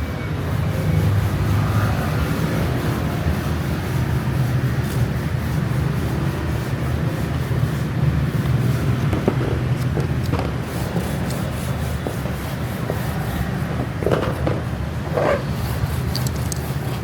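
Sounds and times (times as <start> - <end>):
short scrapes: 8.4 - 17.0.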